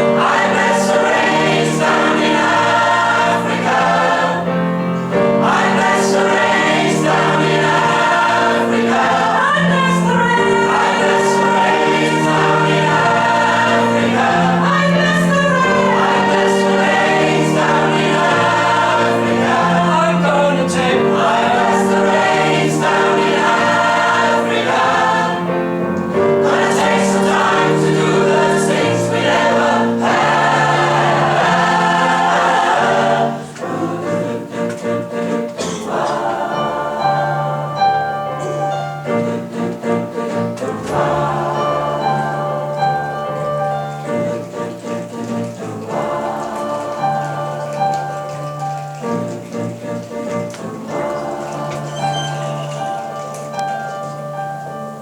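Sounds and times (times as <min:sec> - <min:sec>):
choir singing in harmony: 0:00.0 - 0:55.0.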